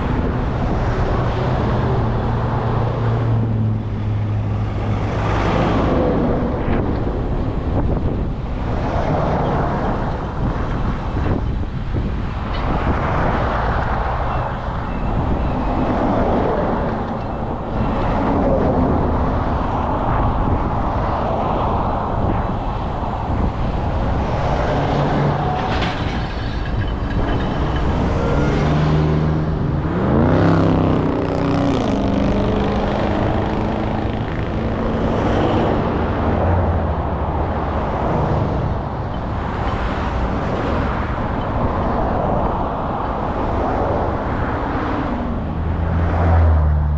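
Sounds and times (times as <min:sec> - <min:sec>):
road traffic: 0:00.0 - 0:46.9
freight train rumbling past: 0:12.7 - 0:46.8
vehicle engine speeding up: 0:27.5 - 0:36.7.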